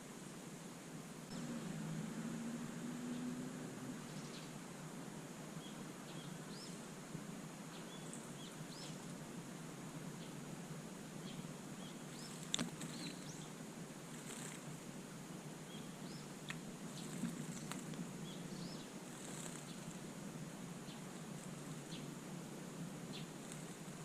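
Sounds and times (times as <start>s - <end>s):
steady outdoor hiss: 0.0s - 24.0s
small birds chirping: 2.8s - 4.6s, 5.5s - 7.0s, 7.6s - 9.3s, 10.1s - 10.5s, 11.1s - 24.0s.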